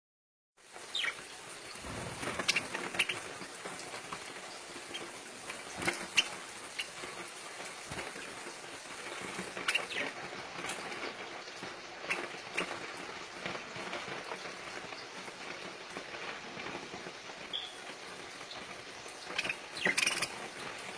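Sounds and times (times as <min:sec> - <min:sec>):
rustling hiss: 0:00.7 - 0:10.2
parakeets chirping: 0:00.9 - 0:03.4, 0:19.2 - 0:20.4.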